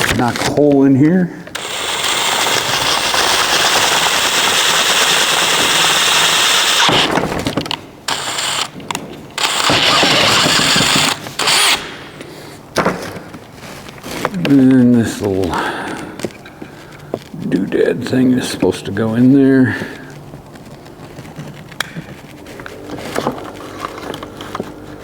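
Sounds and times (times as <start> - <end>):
electric drill running: 1.6 - 7.1, 8.1 - 8.8, 9.4 - 12.0.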